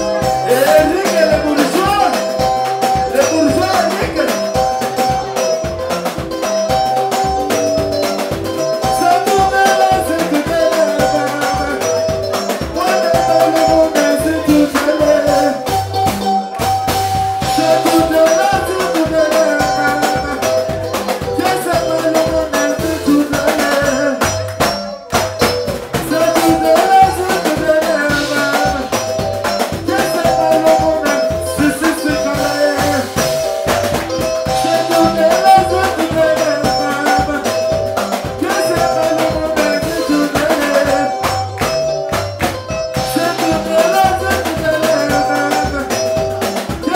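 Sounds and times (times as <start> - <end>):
soukous band music: 0.0 - 46.9.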